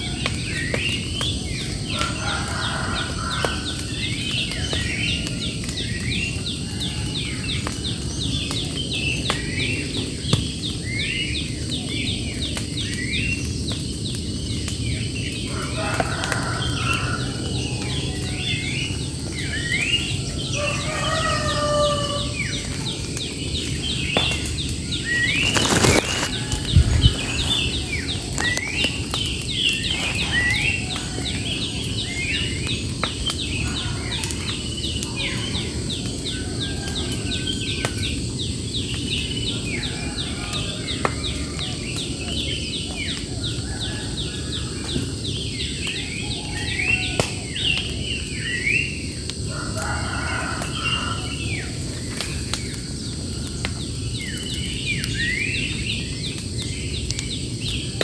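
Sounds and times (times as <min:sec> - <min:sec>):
birds chirping: 0:16.4 - 0:53.3.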